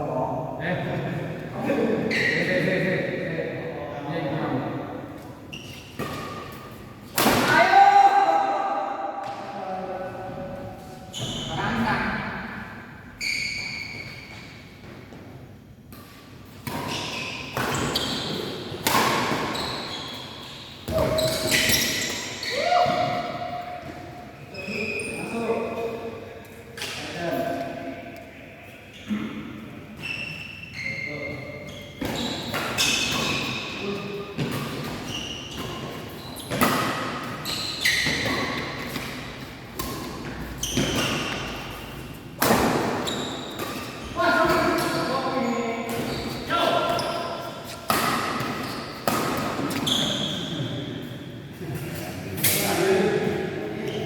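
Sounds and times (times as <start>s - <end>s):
racket hitting shuttlecock: 34.4s - 50.1s.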